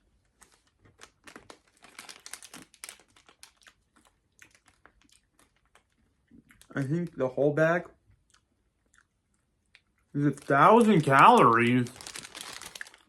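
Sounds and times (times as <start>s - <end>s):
plastic bag crinkling: 0.2s - 6.0s, 10.2s - 13.0s.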